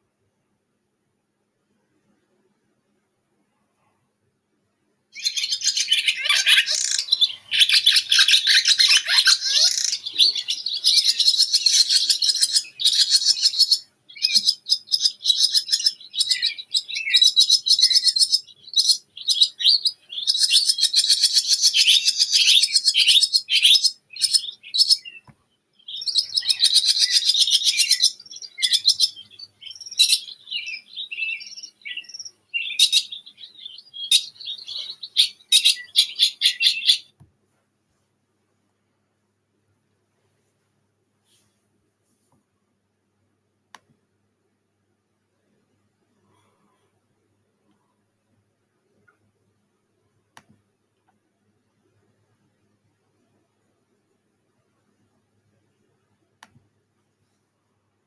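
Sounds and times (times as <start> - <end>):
bird chirps and trills: 5.2 - 37.1.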